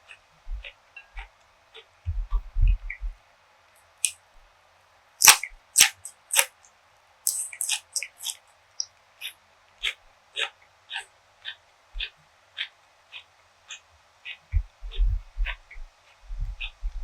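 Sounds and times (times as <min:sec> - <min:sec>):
soft low thumps: 0:00.5 - 0:00.7, 0:02.1 - 0:03.2, 0:14.5 - 0:17.0
crunchy chewing: 0:05.2 - 0:06.6, 0:07.3 - 0:08.5.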